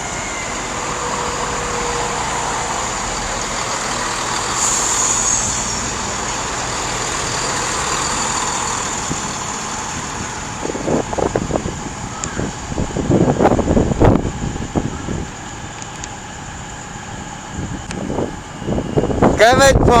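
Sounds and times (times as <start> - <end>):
diesel train engine rumble: 0.0 - 20.0
wind gusts on microphone: 0.0 - 20.0.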